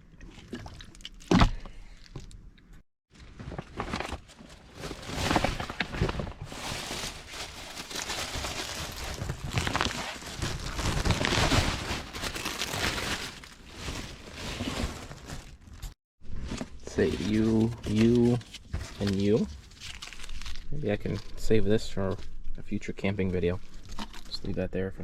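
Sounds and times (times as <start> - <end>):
plastic packaging crinkling: 4.3 - 16.0, 17.0 - 21.3.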